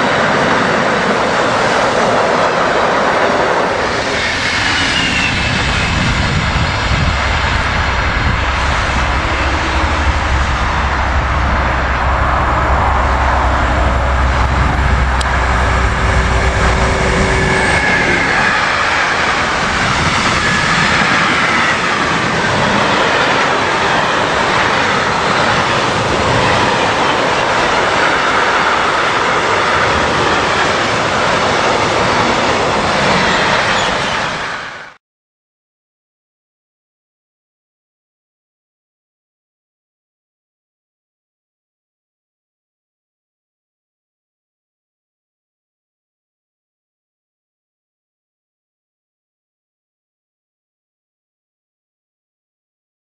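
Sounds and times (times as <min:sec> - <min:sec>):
faint wheel squeal: 0:04.1 - 0:06.1, 0:33.1 - 0:34.9
locomotive deep rumble and hum: 0:05.5 - 0:21.3.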